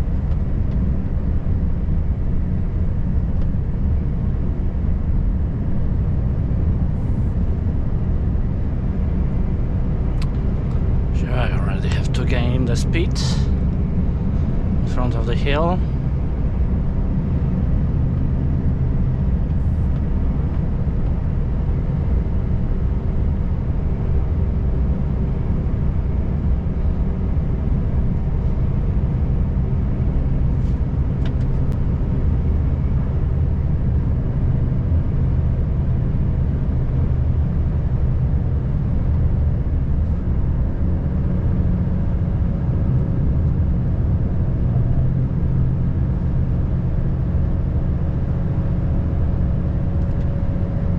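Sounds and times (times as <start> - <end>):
diesel truck engine droning: 0.0 - 50.9
road noise: 0.0 - 50.9.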